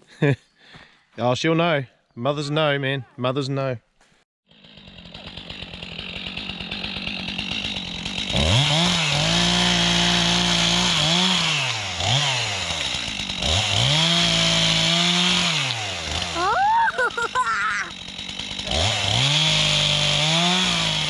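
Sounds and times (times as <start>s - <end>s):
small motorbike engine revving: 4.5s - 21.0s.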